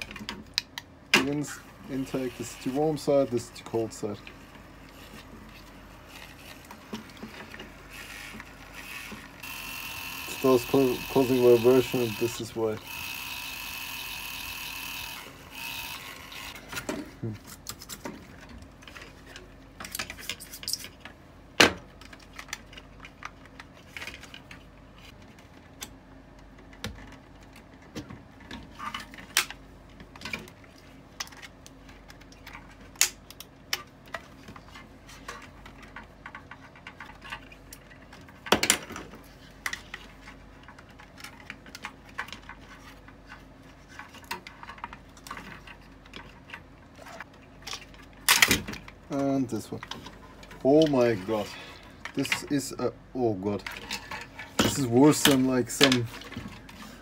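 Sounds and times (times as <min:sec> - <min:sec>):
clicks and knocks of plastic and metal: 0:16.6 - 0:51.0.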